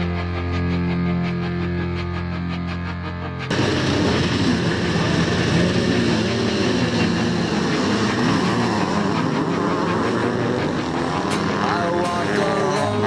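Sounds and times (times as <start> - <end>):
motorcycle engines revving: 3.4 - 13.0.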